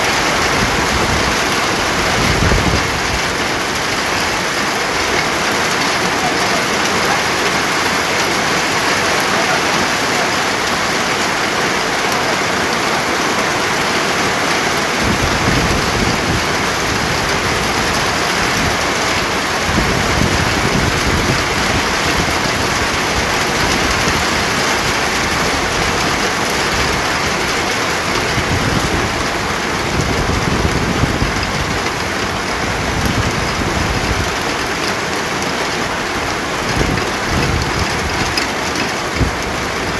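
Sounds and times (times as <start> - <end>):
heavy rain hissing: 0.0 - 39.9
thunder rumbling: 14.7 - 34.4.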